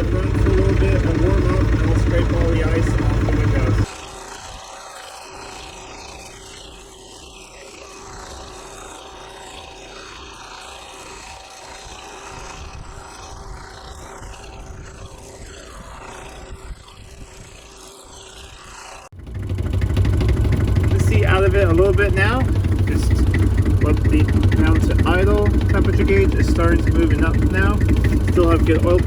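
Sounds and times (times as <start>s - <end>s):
tractor diesel engine running: 0.0s - 3.9s, 19.2s - 29.0s.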